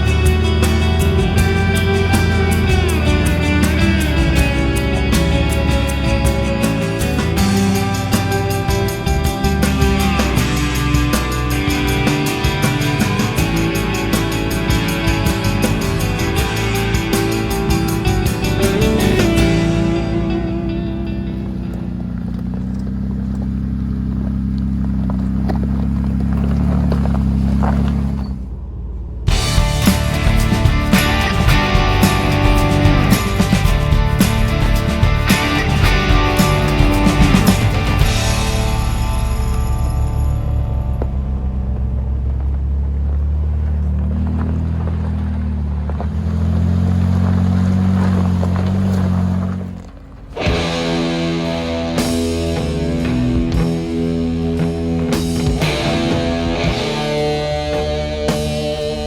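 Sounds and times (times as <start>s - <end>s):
music: 0.0s - 21.9s, 29.3s - 42.0s, 50.4s - 59.0s
gravel clicks and rattles: 0.0s - 59.0s
vehicle engine running: 0.0s - 59.0s.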